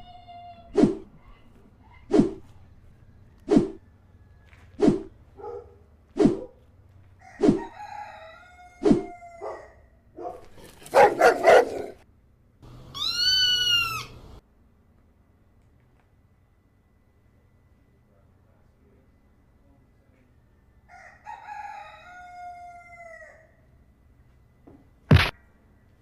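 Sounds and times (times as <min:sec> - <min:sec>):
rubber chicken toy squawking: 0:13.0 - 0:14.2.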